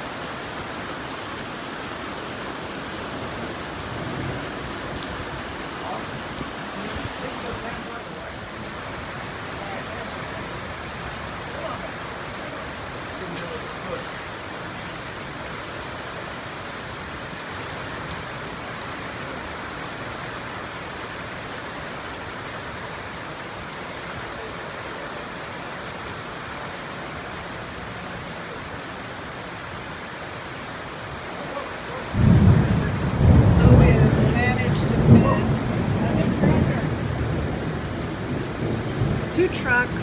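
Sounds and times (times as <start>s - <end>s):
heavy rain falling: 0.0s - 40.0s
thunder clap rumbling: 32.1s - 40.0s.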